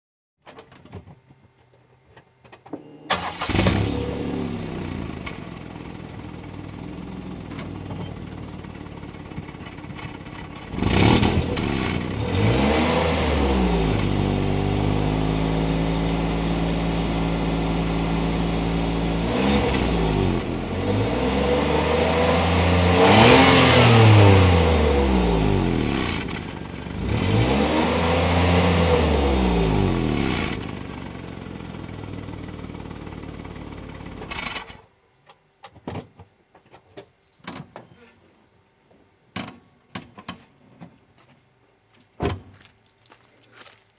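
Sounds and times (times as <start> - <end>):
car engine starting: 2.8 - 34.8
car engine idling and revving: 3.1 - 34.8.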